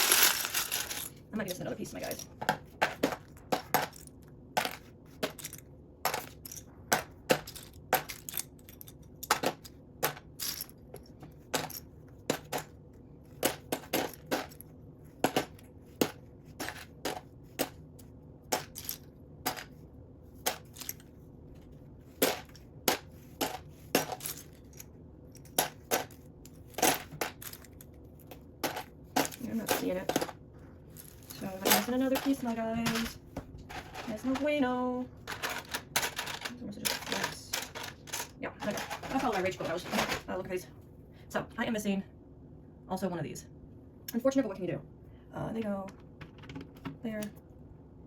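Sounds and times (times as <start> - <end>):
plastic bricks clicking and clattering: 0.0 - 1.1, 35.2 - 40.3.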